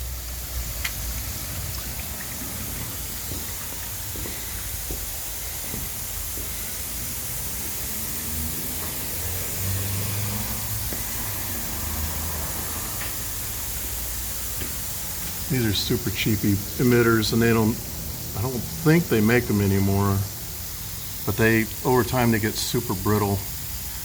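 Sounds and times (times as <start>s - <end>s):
steady hiss: 0.0s - 24.0s
car engine passing: 5.4s - 14.4s.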